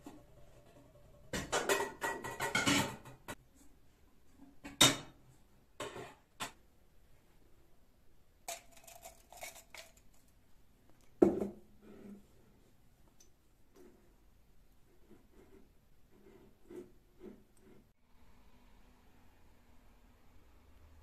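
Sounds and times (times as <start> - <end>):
hard objects clattering and clinking: 8.5 - 10.4.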